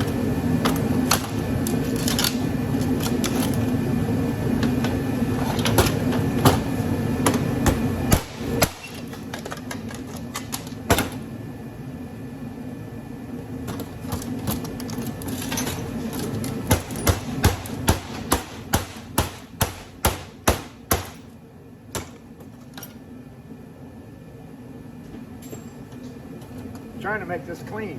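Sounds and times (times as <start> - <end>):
hammer striking metal: 16.7 - 21.2.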